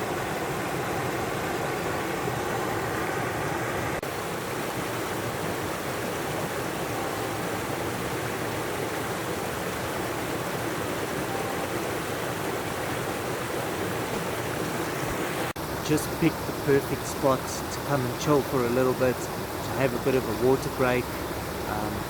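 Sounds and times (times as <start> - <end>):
steady rushing noise: 0.0 - 22.0.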